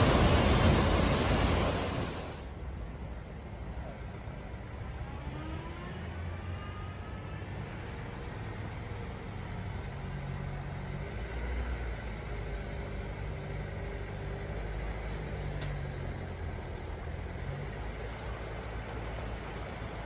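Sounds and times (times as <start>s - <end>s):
constant rushing noise: 0.0s - 3.0s
vehicle engine running at low speed: 0.0s - 20.0s.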